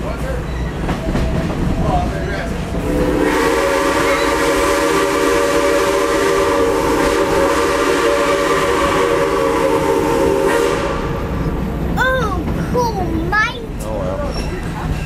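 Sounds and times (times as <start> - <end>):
train whistle blast: 2.8 - 11.3.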